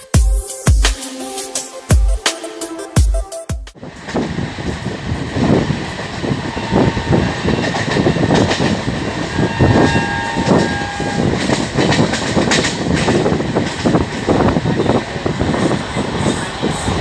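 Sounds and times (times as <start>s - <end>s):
train running and wind rush: 3.7s - 17.0s
wheels clattering over rail joints: 4.0s - 17.0s.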